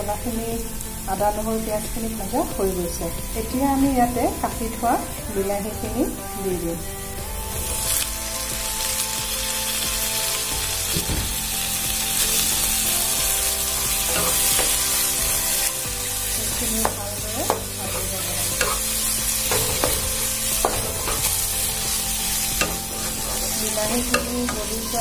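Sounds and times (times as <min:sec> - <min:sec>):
tomatoes sizzling in hot oil: 0:00.0 - 0:25.0
spatula scraping a pan: 0:14.0 - 0:15.7, 0:16.7 - 0:25.0
spatula tapping a pan: 0:16.8 - 0:18.0, 0:18.6 - 0:18.9, 0:19.5 - 0:21.3.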